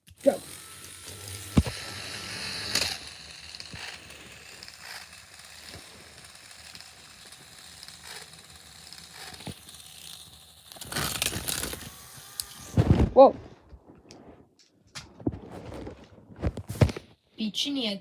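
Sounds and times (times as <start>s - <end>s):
toy train motors whirring: 0.0s - 13.0s
sharp clicks and knocks: 1.5s - 1.9s.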